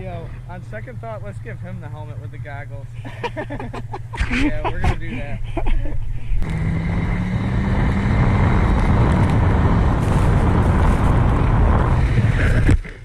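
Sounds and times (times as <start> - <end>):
small engine running hard: 6.0 - 12.9.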